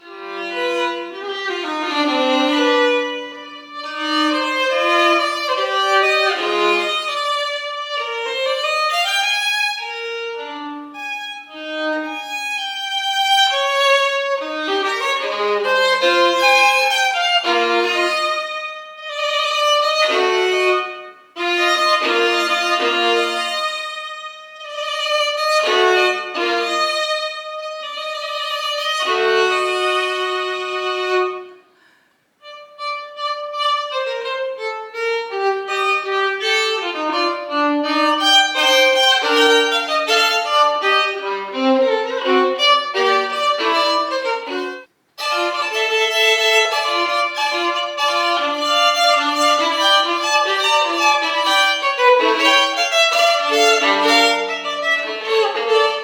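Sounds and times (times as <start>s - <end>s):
solo violin playing: 0.0s - 56.0s.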